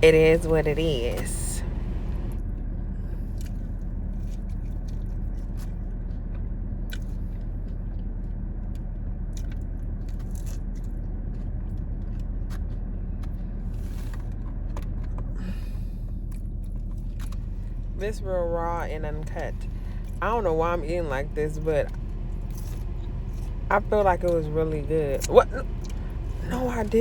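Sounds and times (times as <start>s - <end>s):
steady low hum: 0.0s - 27.0s
person biting and chewing food: 6.9s - 7.4s, 9.3s - 12.7s, 15.7s - 17.8s, 21.9s - 23.7s.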